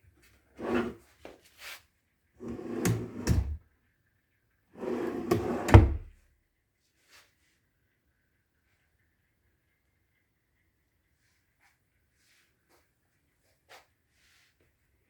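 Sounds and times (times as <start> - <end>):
drawer sliding open and shut: 0.6 - 1.0, 2.4 - 3.6, 4.8 - 6.1
drawer knocking as it stops: 2.5 - 3.6, 5.1 - 6.1.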